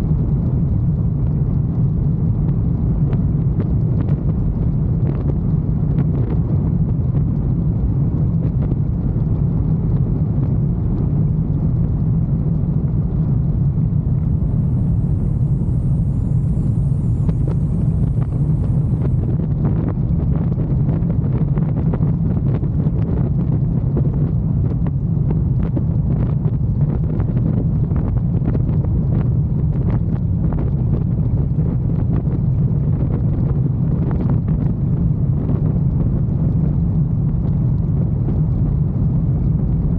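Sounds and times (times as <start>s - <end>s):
wind buffeting microphone: 0.0s - 39.9s
motorcycle engine humming: 13.6s - 19.5s.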